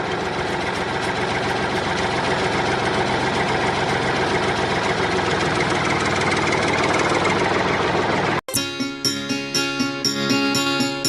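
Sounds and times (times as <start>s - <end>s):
engine idling with chugging: 0.0s - 8.4s.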